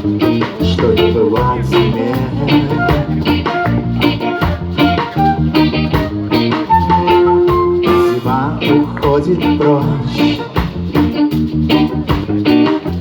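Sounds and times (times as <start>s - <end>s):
bass guitar: 0.0s - 13.0s
drum kit: 0.0s - 13.0s
electric guitar: 0.0s - 13.0s
person singing: 0.6s - 5.4s, 6.8s - 10.9s.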